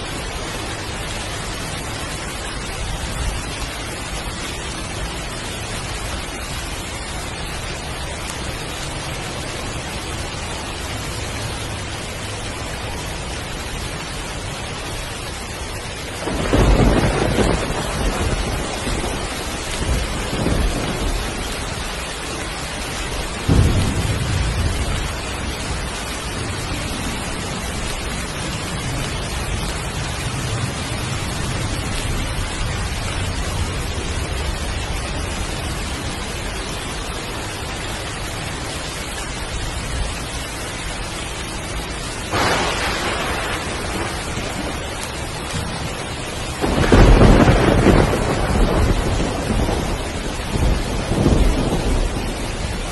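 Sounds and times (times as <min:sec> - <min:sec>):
thunder rumbling: 0:00.0 - 0:40.2, 0:41.7 - 0:52.9
heavy rain falling: 0:00.0 - 0:52.9
sharp thunder crack: 0:23.4 - 0:25.1, 0:42.3 - 0:45.9, 0:46.6 - 0:52.4.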